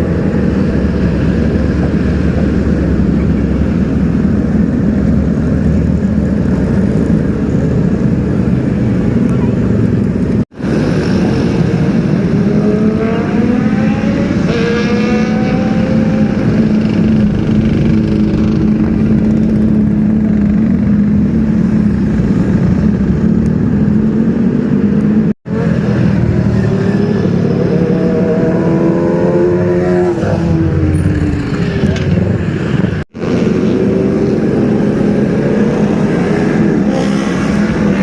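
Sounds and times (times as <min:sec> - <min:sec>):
engine revving: 0:10.7 - 0:24.4, 0:25.5 - 0:38.0.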